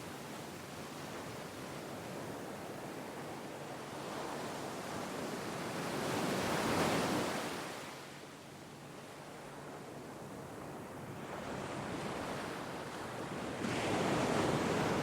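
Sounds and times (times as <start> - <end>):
sea waves washing on shore: 11.2 - 15.0.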